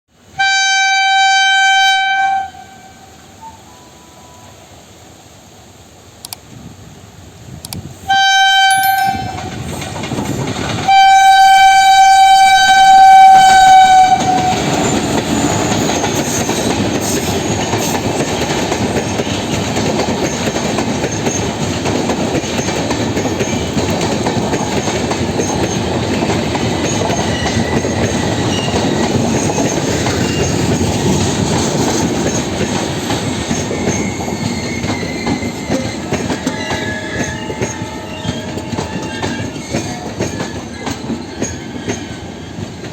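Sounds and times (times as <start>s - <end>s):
train coaches rumbling past: 0.2s - 42.9s
train horn blasts: 0.3s - 4.6s, 8.1s - 9.5s, 10.9s - 15.0s, 35.2s - 40.3s.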